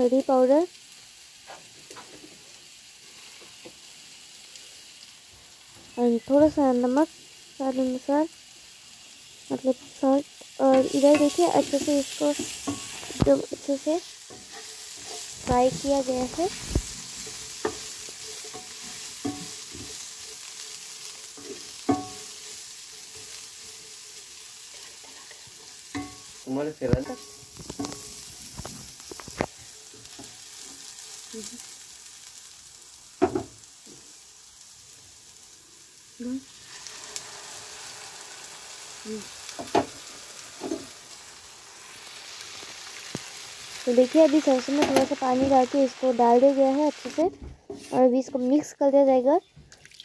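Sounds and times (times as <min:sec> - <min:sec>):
vegetables sizzling in oil: 0:00.0 - 0:49.6
spatula scraping a pan: 0:10.7 - 0:13.4, 0:14.1 - 0:20.7, 0:24.7 - 0:26.4.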